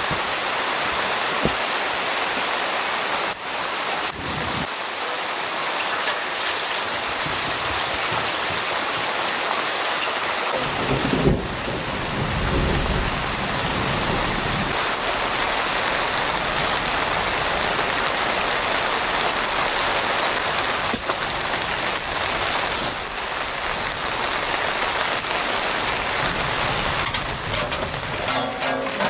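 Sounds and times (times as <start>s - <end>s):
heavy rain falling: 0.0s - 29.0s
low thunder rumble: 10.6s - 15.1s.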